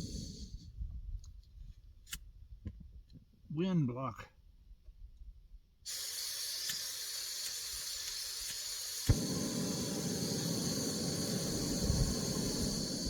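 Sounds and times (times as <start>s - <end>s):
gas camp stove hissing: 0.0s - 0.6s, 5.9s - 13.0s
burner rushing: 8.8s - 13.0s.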